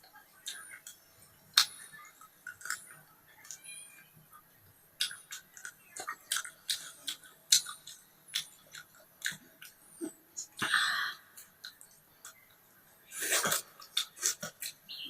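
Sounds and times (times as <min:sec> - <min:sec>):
person chewing: 0:02.4 - 0:03.6, 0:05.0 - 0:10.6, 0:13.2 - 0:14.8
wet mouth clicks: 0:05.0 - 0:10.7, 0:13.2 - 0:14.8.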